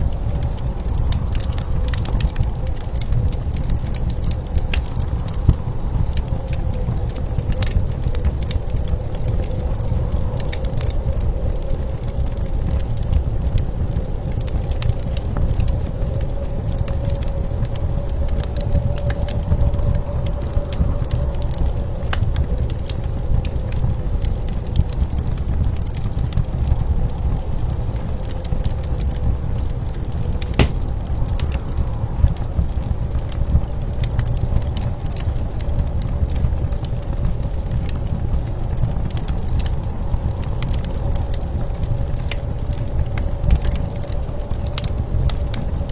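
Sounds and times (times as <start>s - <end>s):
low rumble of blizzard wind: 0.0s - 45.9s
fire crackling and popping: 0.1s - 16.9s, 29.8s - 31.8s
wood fire crackling and popping: 30.4s - 31.7s.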